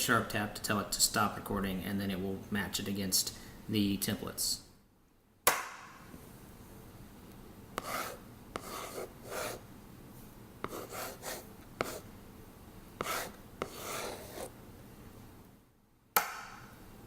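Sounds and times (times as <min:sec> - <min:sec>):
pen scratching on textured surface: 0:07.8 - 0:09.6, 0:10.6 - 0:12.1, 0:13.0 - 0:14.5.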